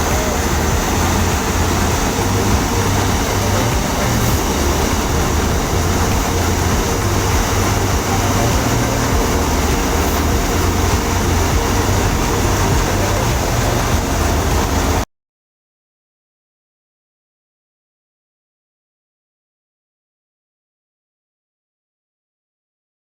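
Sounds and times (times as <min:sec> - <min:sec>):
farm machinery running: 0:00.0 - 0:15.0
low engine hum: 0:00.0 - 0:15.1.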